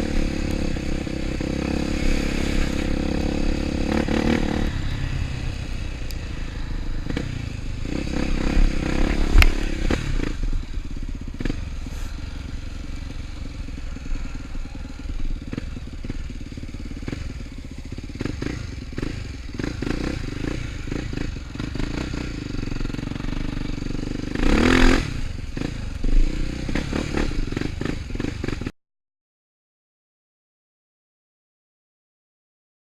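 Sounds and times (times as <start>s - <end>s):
motorcycle engine running: 0.0s - 28.7s.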